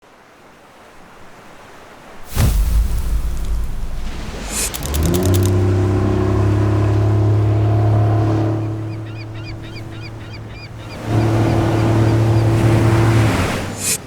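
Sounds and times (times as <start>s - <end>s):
steady low tone: 2.4s - 13.2s.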